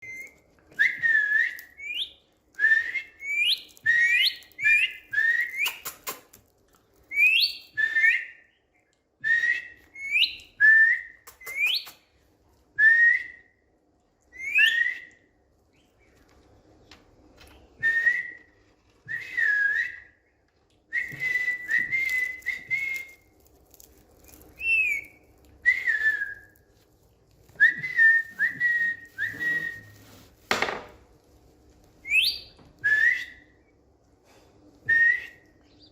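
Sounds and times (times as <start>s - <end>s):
parakeet whistling: 14.3s - 15.1s, 24.6s - 26.5s, 27.7s - 30.0s, 32.0s - 33.5s.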